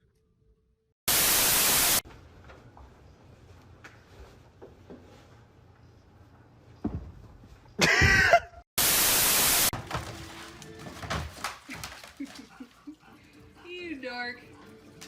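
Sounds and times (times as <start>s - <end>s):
loud static hiss: 1.1s - 2.0s, 8.8s - 9.7s.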